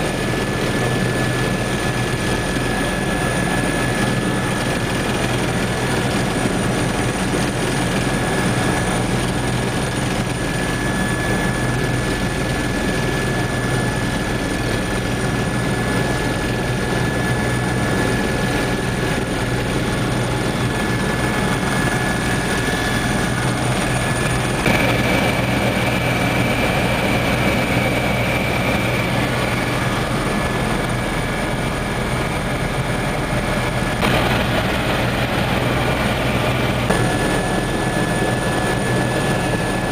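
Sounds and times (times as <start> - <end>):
helicopter drone: 0.0 - 39.9
thin whine: 18.0 - 39.9
higher whine: 20.4 - 32.1, 33.9 - 39.6.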